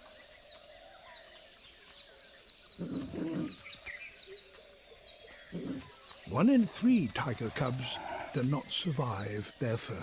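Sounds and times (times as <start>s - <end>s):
high insect drone: 0.0s - 10.0s.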